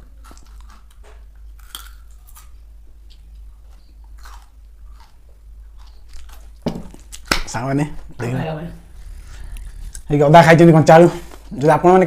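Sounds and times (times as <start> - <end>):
person crunching raw potato: 0.0 - 7.6.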